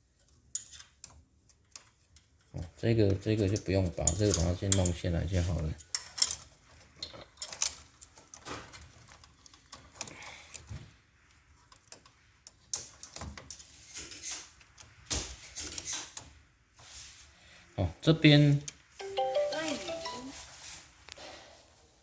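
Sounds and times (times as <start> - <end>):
small parts clicking and clattering: 0.0 - 16.4.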